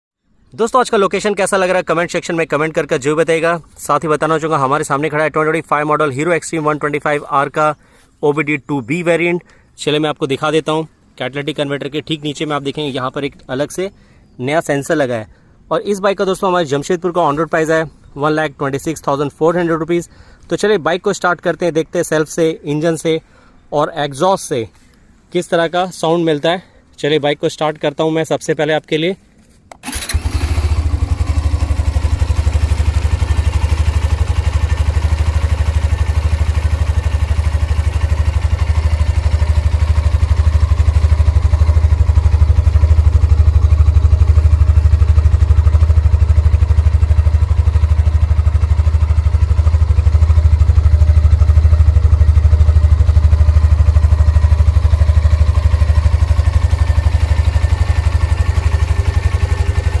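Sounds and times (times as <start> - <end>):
motorcycle engine idling: 29.8 - 60.0.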